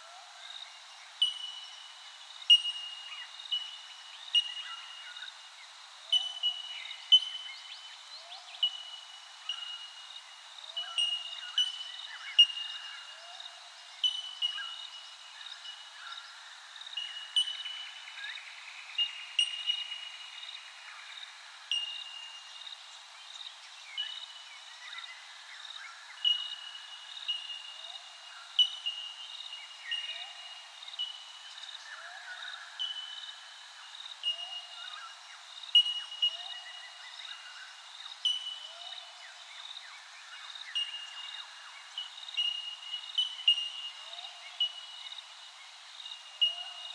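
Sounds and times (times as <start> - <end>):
lower bird chirps: 0.4 - 5.3, 14.0 - 22.6, 23.3 - 46.9.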